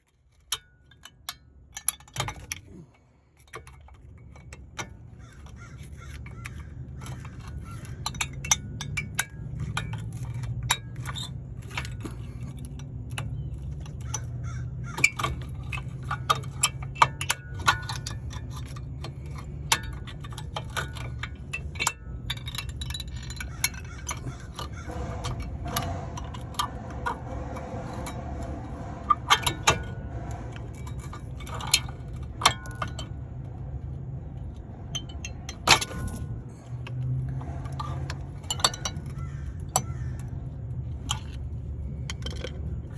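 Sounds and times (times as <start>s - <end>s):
metal tools clinking: 6.3s - 39.7s
steady low hum: 15.0s - 42.9s.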